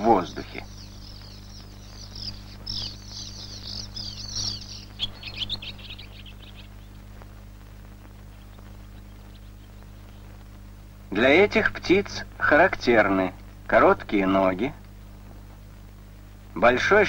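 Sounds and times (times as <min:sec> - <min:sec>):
high-pitched bird twittering: 0:00.0 - 0:07.0
low hum: 0:00.0 - 0:16.7.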